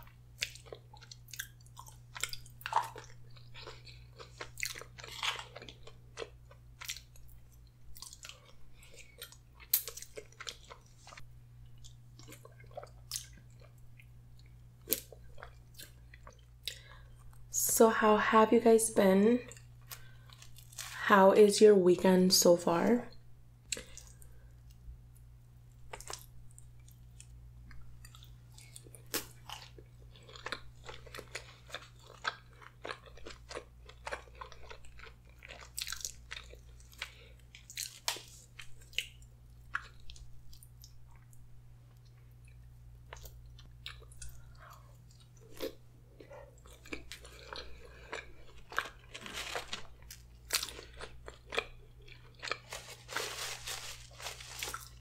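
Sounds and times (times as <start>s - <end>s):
wet chewing and biting: 0.0s - 17.4s, 25.9s - 41.4s, 42.0s - 53.1s
steady low hum: 0.0s - 55.0s.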